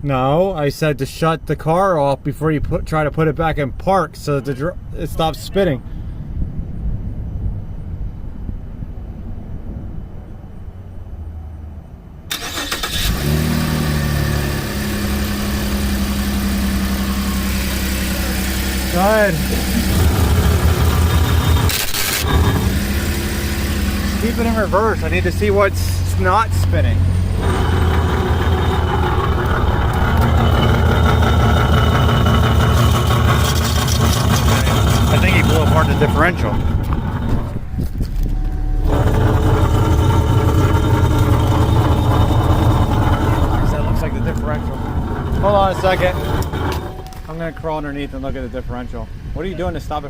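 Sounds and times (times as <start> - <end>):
car engine starting and idling: 12.2 - 50.0
driveline rumble: 13.6 - 50.0.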